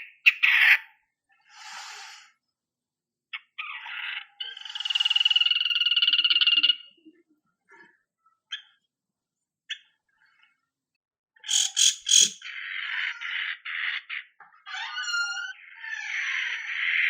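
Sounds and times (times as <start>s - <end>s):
bird singing harsh buzzing trills: 11.4s - 12.4s.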